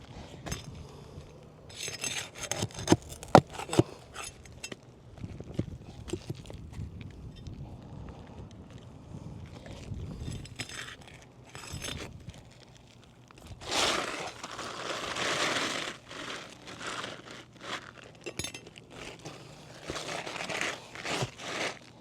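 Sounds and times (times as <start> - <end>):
roof shingles scraping and crinkling: 1.7 - 6.8, 9.5 - 22.0.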